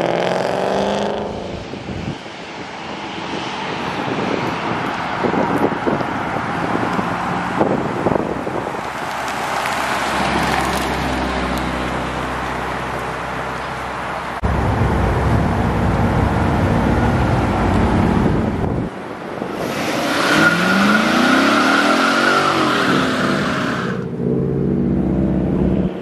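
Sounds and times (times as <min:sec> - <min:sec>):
deep car engine rolling by: 0:14.4 - 0:18.9.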